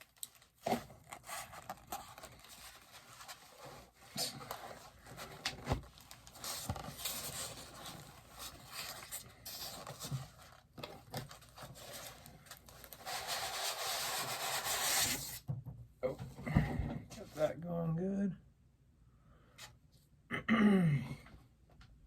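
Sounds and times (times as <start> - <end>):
styrofoam scraping cardboard: 11.6 - 15.4.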